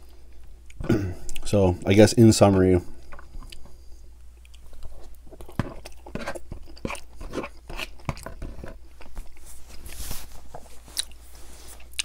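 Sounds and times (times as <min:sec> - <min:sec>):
wet chewing mouth sounds: 0:03.0 - 0:09.4, 0:10.9 - 0:11.2, 0:11.8 - 0:12.0.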